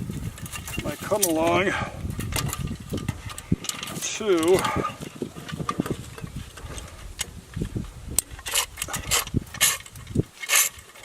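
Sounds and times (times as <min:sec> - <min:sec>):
metal chain clinking and rattling: 0:00.1 - 0:07.0.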